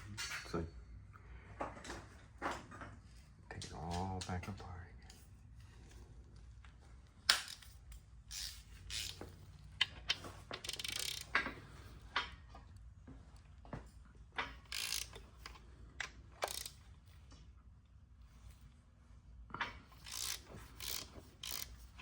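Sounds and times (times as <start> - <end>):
socket ratchet clicking: 7.3 - 9.2, 9.8 - 11.4, 14.6 - 15.6, 16.4 - 16.8, 20.0 - 22.0.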